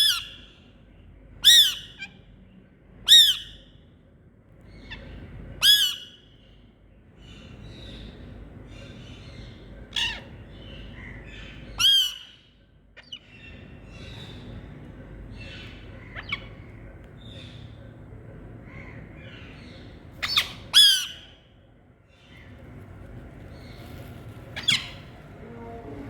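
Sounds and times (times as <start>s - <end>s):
parrots squawking: 0.0s - 0.5s, 4.8s - 6.2s, 9.6s - 13.6s, 15.4s - 16.7s, 18.7s - 21.4s, 24.6s - 25.2s
parrots chattering: 0.0s - 0.6s, 4.8s - 6.3s, 7.3s - 14.6s, 15.3s - 17.8s, 18.6s - 21.4s, 23.5s - 25.3s.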